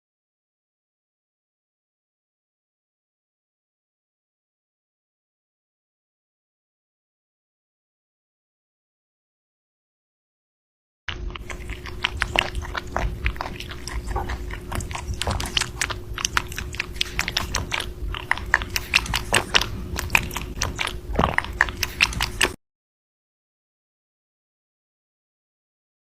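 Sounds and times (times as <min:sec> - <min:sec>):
animal chewing crunchy food: 0:11.1 - 0:22.6
faint steady hum: 0:11.1 - 0:22.6.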